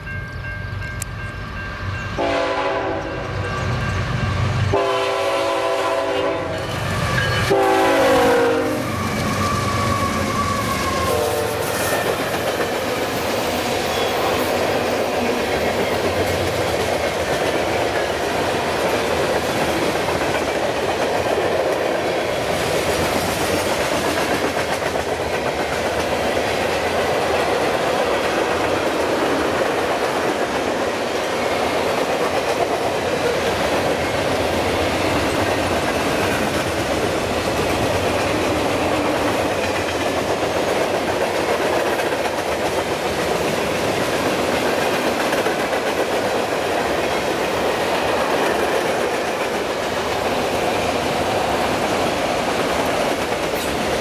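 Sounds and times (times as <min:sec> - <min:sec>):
locomotive air horn blasts: 0:02.2 - 0:03.2, 0:04.7 - 0:06.7, 0:07.5 - 0:09.1, 0:11.1 - 0:11.9
train wheels clattering on rails: 0:06.6 - 0:54.0.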